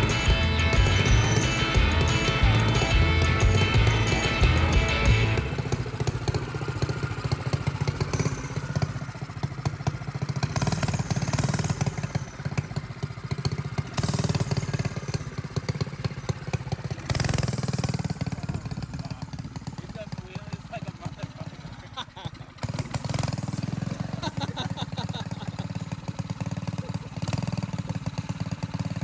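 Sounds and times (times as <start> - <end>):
mini bike engine revving: 0.0 - 29.0.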